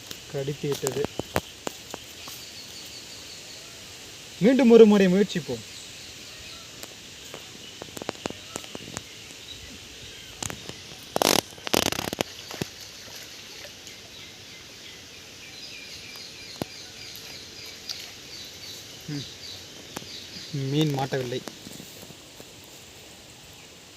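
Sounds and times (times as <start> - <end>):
outdoor ambience: 0.0 - 23.9
bird chirping: 0.7 - 22.0
faint clicks: 6.8 - 9.4.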